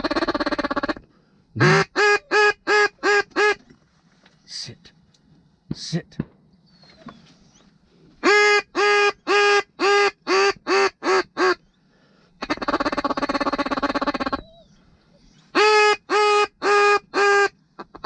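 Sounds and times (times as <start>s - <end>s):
duck call quacks: 1.6s - 3.6s, 8.2s - 11.6s, 12.4s - 14.4s, 15.6s - 18.0s.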